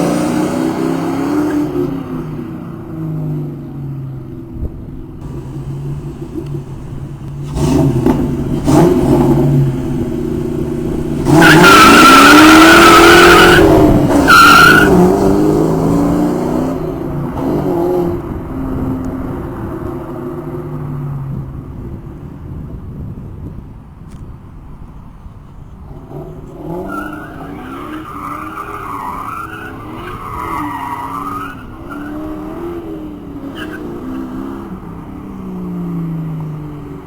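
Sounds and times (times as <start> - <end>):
tires squealing: 5.2 - 21.1, 25.9 - 35.3
car engine revving: 5.2 - 21.8, 25.9 - 37.0.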